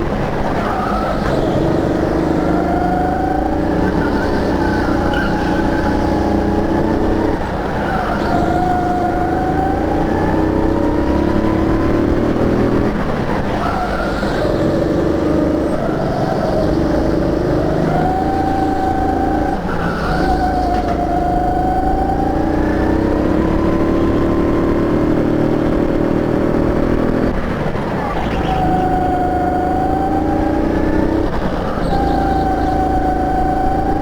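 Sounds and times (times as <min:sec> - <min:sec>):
go-kart engine revving: 0:00.0 - 0:34.0.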